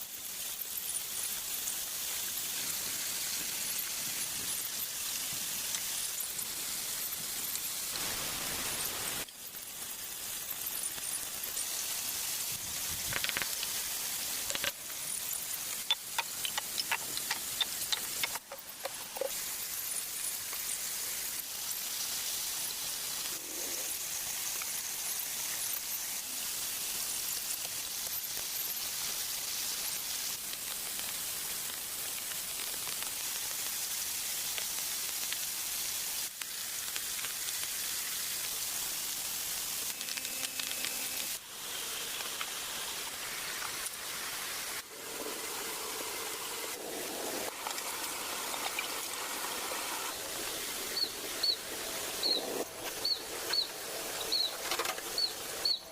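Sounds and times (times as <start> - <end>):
steady outdoor hiss: 0.0 - 55.9.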